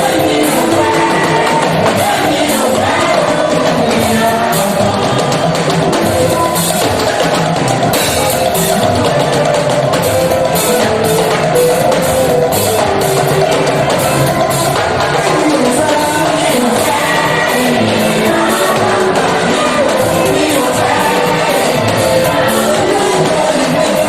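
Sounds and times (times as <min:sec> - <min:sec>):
church band music: 0:00.0 - 0:24.0.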